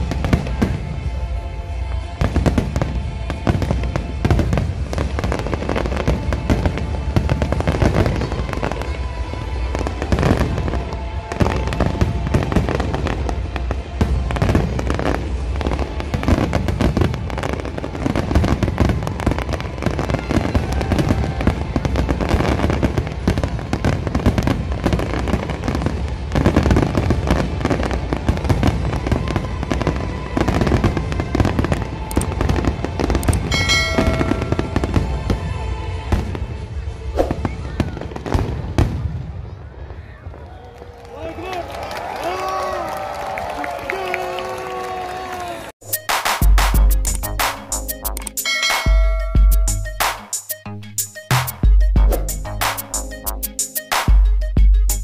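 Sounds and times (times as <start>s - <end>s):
music: 0.0s - 38.8s, 45.8s - 55.0s
fireworks bangs: 0.0s - 41.1s
fireworks crackling and popping: 0.0s - 49.1s, 51.3s - 54.2s.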